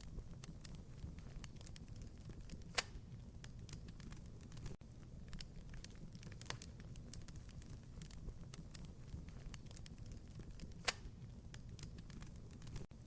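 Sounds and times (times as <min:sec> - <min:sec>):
sharp fire pops: 0:00.0 - 0:12.9
wood fire crackling: 0:00.0 - 0:13.0.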